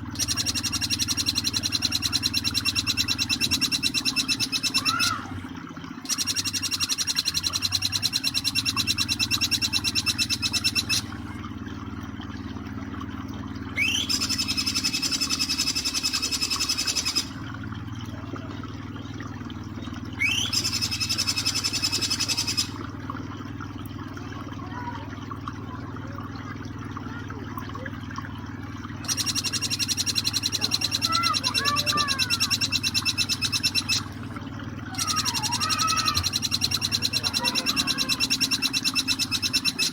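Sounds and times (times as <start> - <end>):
flowing water: 0.0 - 39.9
bird rapid ringing trill: 0.1 - 5.2, 6.0 - 11.2, 13.8 - 17.4, 20.2 - 22.8, 29.0 - 34.1, 34.9 - 39.9
faint chirps: 0.1 - 5.3, 6.0 - 11.2, 13.7 - 17.4, 20.1 - 22.9, 29.0 - 34.2, 34.9 - 39.9.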